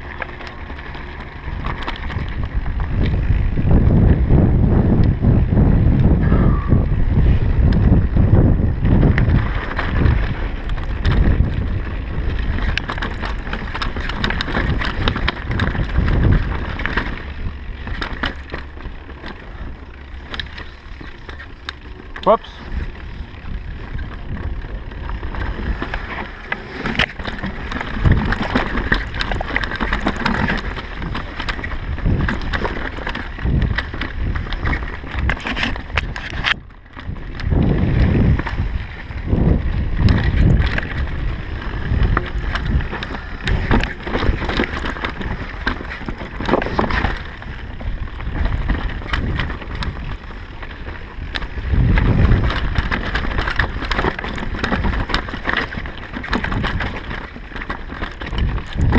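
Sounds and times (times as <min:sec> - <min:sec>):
bike rattling: 0:00.0 - 0:58.9
tyres rumbling over dirt: 0:00.0 - 0:58.9
wind buffeting microphone: 0:00.0 - 0:58.9.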